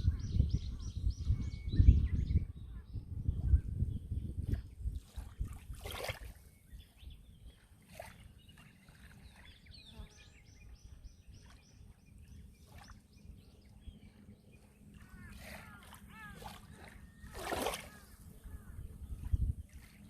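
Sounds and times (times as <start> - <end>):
soft water splashes: 3.3 - 20.0
sea waves lapping: 5.0 - 20.0.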